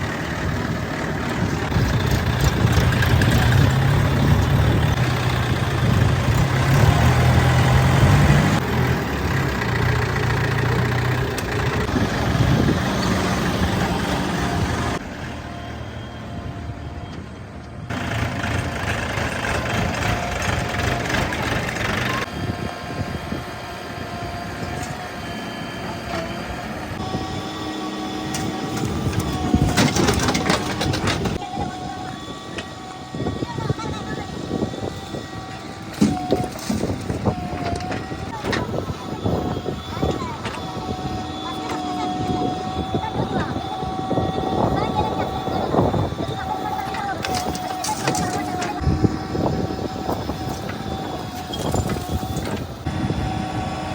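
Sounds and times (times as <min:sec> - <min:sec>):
heavy diesel engines running: 0:00.0 - 0:53.9.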